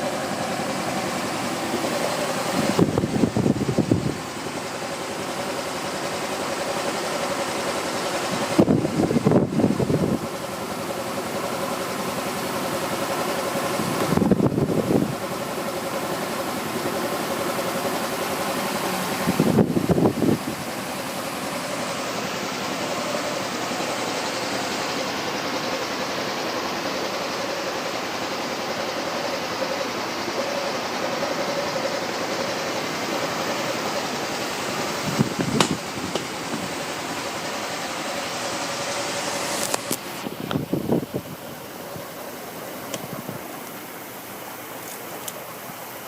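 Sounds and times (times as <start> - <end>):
scooter engine idling: 0.0 - 46.0.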